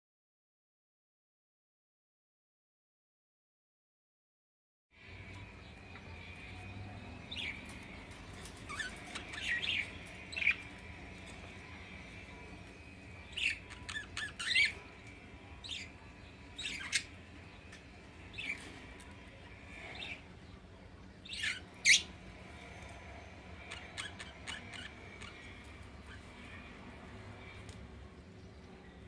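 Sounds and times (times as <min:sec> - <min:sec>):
bird squawks and chirps: 0:08.6 - 0:10.7, 0:13.2 - 0:15.0, 0:15.6 - 0:17.2, 0:21.2 - 0:22.2, 0:23.6 - 0:26.6.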